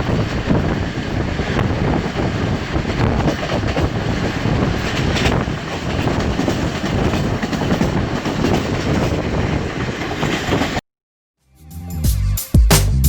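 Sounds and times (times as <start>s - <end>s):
train wheels clattering on rails: 0.0s - 10.8s.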